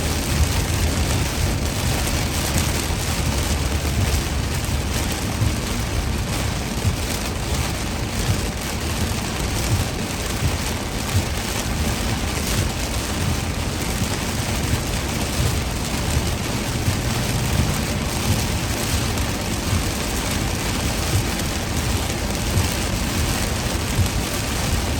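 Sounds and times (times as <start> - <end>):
heavy rain on a car: 0.0 - 24.9
low road rumble: 0.0 - 24.9.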